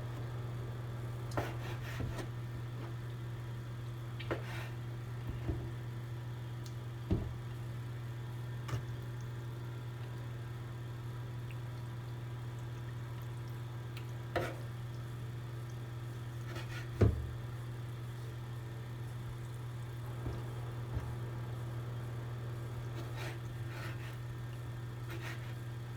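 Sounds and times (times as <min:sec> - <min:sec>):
steady low hum: 0:13.1 - 0:25.9.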